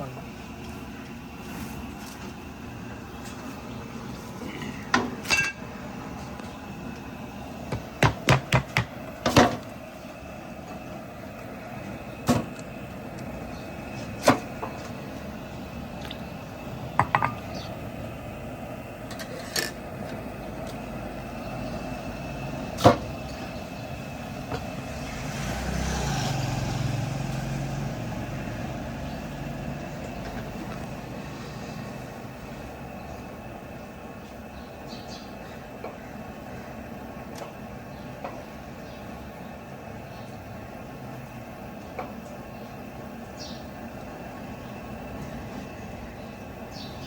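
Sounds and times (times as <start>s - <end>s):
street noise: 0.0s - 47.0s
metal dishes and utensils clinking: 5.2s - 5.6s
passing vehicle rumble: 19.8s - 33.7s.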